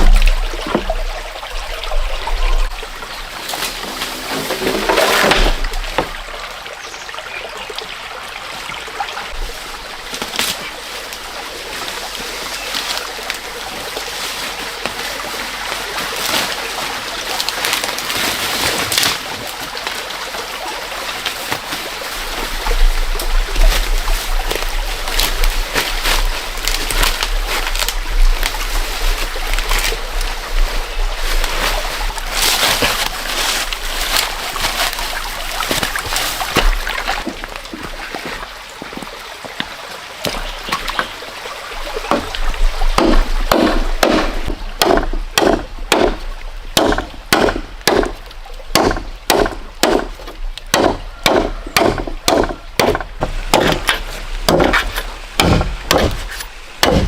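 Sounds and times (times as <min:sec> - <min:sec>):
water splashing and trickling: 0:00.0 - 0:57.0
small sharp splashes or knocks: 0:21.0 - 0:39.2.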